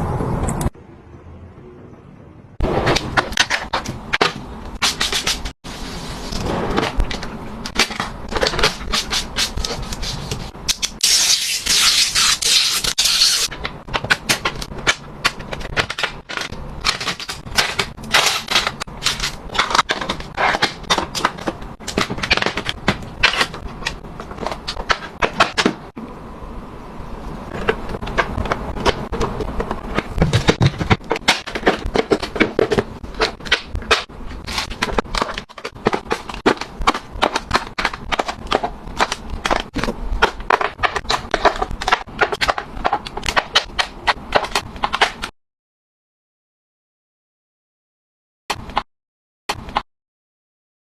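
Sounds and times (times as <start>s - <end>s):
objects clicking and knocking: 13.4s - 26.0s, 27.5s - 45.3s.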